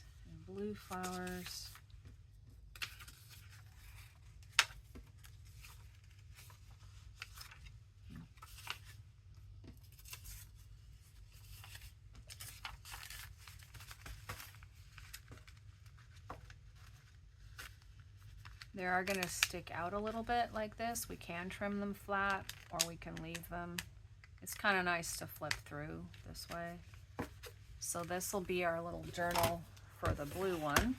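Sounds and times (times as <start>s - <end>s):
paper sheets rustling: 0.7s - 1.8s, 9.8s - 19.5s, 26.3s - 30.9s.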